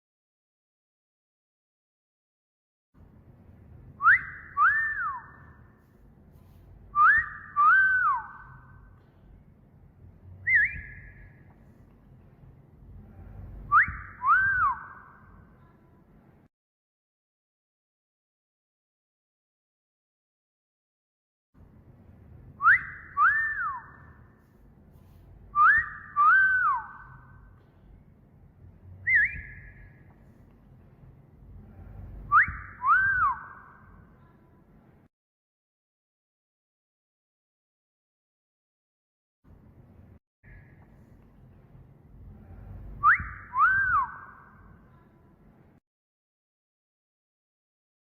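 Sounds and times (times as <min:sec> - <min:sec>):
wolf whistle: 0:04.0 - 0:05.7, 0:06.9 - 0:08.9, 0:10.4 - 0:11.4, 0:13.7 - 0:15.3, 0:22.6 - 0:24.2, 0:25.5 - 0:27.4, 0:29.0 - 0:30.0, 0:32.2 - 0:33.9, 0:43.0 - 0:44.6
short wavering whistle: 0:04.0 - 0:05.8, 0:06.9 - 0:08.9, 0:10.4 - 0:11.4, 0:13.6 - 0:15.4, 0:22.6 - 0:24.3, 0:25.5 - 0:27.4, 0:29.0 - 0:30.0, 0:31.9 - 0:33.9, 0:42.6 - 0:44.7.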